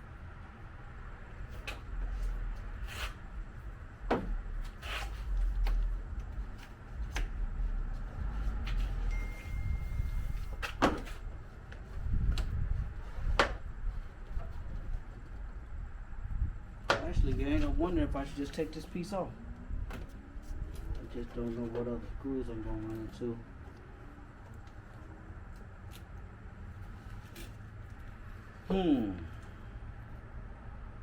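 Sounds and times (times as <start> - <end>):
low rumble: 7.3 - 10.6.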